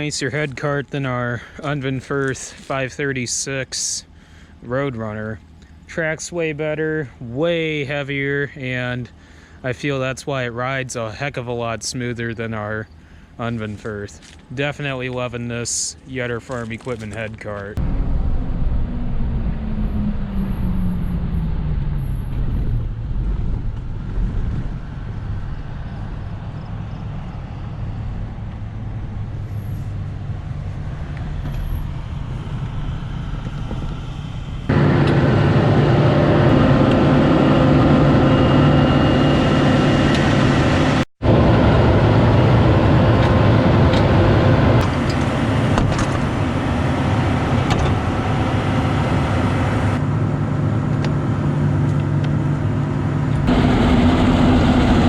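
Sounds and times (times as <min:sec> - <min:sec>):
vehicle engine running: 0:16.2 - 0:55.0.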